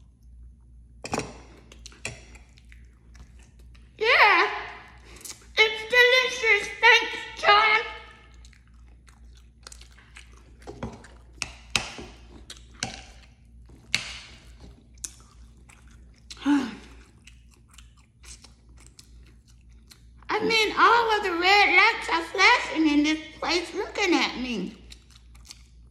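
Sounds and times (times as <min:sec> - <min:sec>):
person chewing soft food: 0:00.0 - 0:04.0, 0:04.7 - 0:05.6, 0:08.0 - 0:20.3, 0:24.7 - 0:25.9.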